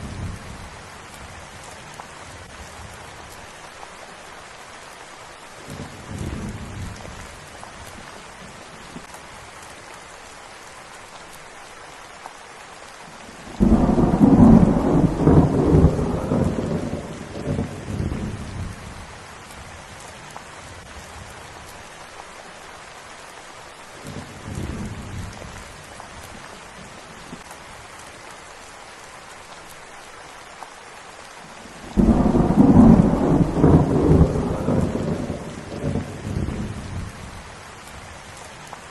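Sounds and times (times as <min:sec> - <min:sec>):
rain falling: 0:00.0 - 0:38.9
thunder rumbling: 0:13.5 - 0:19.1, 0:31.8 - 0:37.4.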